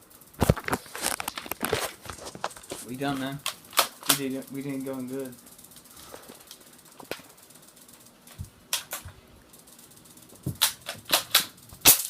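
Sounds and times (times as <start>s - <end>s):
toy gun clicking and firing: 3.1s - 4.8s, 8.7s - 9.1s, 10.0s - 12.0s.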